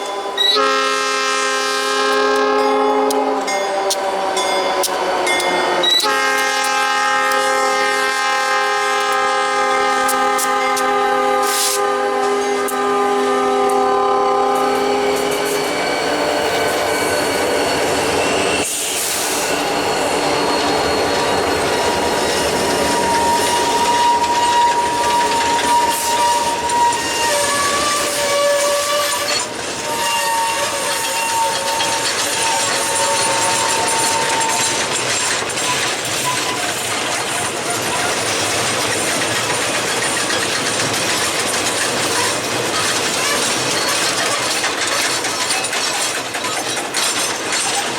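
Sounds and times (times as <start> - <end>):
locomotive horn: 0.0 - 16.8, 22.5 - 34.9
freight train rumbling past: 0.0 - 47.9.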